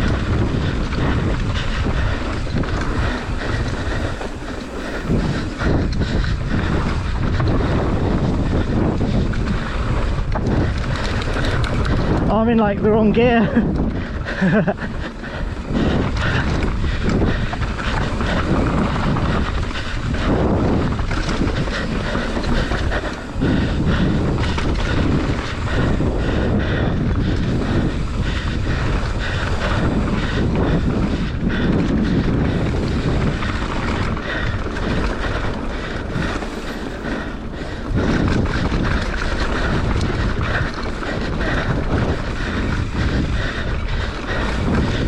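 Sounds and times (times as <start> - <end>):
bike rattling and knocking: 0.0 - 45.0
wind buffeting microphone: 0.0 - 45.0
tyres rumbling over dirt and rock: 13.6 - 45.0.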